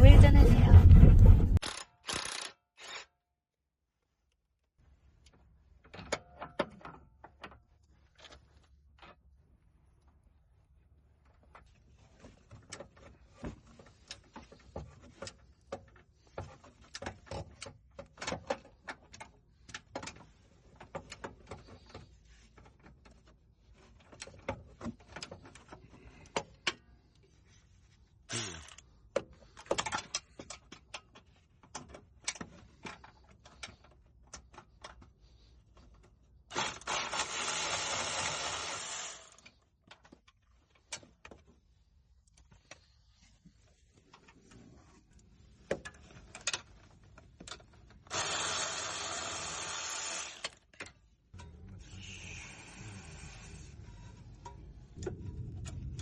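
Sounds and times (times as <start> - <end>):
suspension creaking and clicking: 50.2 - 56.0.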